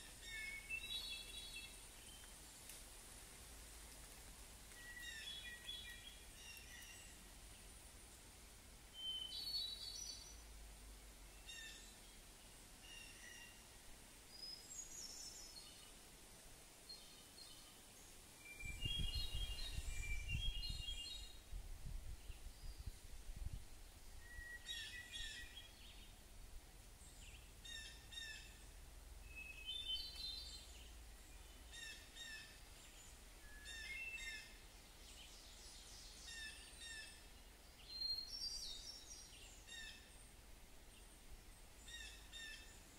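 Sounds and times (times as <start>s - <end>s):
birds chirping and singing: 0.0s - 2.3s, 18.6s - 21.4s, 29.3s - 37.2s.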